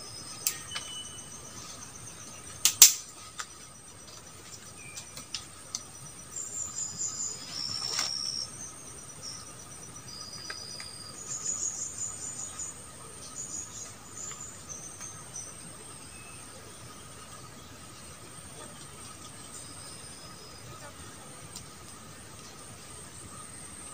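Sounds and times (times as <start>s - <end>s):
insects droning: 0.0s - 23.9s
high chirps and whistles: 0.1s - 1.5s.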